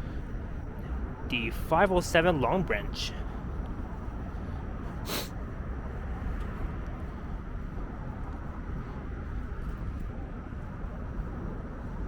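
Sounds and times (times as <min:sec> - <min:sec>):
street traffic and streetcars rumbling: 0:00.0 - 0:12.0
brief hiss: 0:05.1 - 0:05.3.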